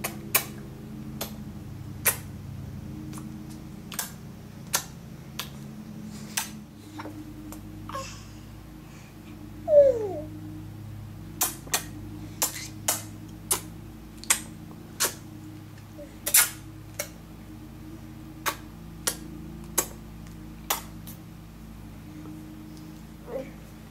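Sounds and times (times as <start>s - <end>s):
lip smacking kisses: 0.0s - 0.6s, 2.0s - 2.3s, 3.9s - 5.6s, 6.3s - 6.6s, 11.4s - 15.2s, 16.2s - 17.1s, 18.4s - 20.0s
low hum: 0.0s - 23.9s.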